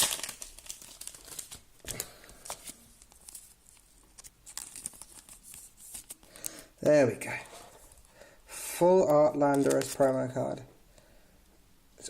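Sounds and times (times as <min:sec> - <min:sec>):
packaging crinkling and scraping: 0:00.0 - 0:06.6.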